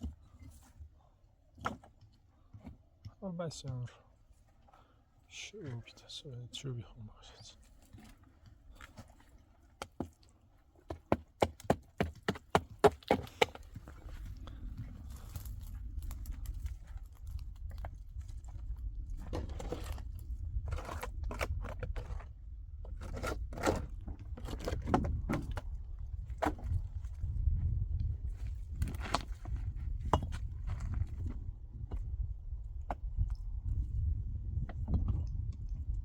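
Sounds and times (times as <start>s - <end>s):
scraping and crunching: 12.2s - 27.3s, 28.3s - 32.0s
low rumble: 13.9s - 23.1s, 23.8s - 36.0s.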